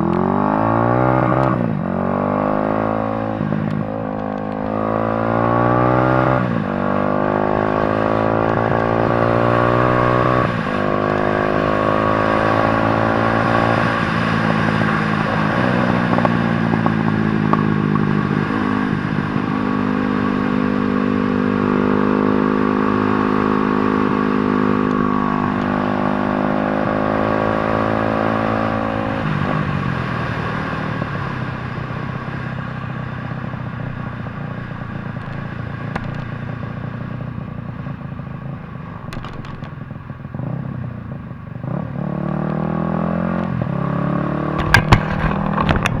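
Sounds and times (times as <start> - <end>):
dirt bike engine revving: 0.0 - 29.2, 41.7 - 46.0
sharp knocks: 35.2 - 36.4, 39.1 - 39.8, 44.6 - 46.0.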